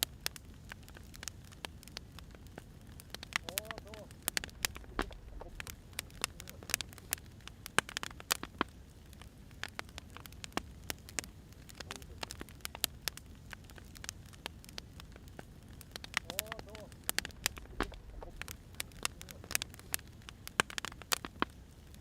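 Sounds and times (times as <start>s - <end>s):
firewood crackling and popping: 0.0s - 22.0s
low steady rumble: 3.4s - 7.7s, 15.6s - 20.2s.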